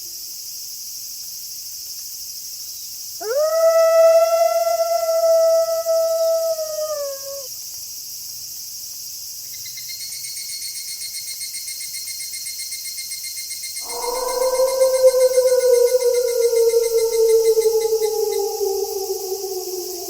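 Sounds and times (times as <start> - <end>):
night insects chirring: 0.1 - 20.0
fast pulsing insect trill: 3.2 - 7.5, 13.8 - 20.0
wolf howling: 3.2 - 7.5, 13.8 - 20.0.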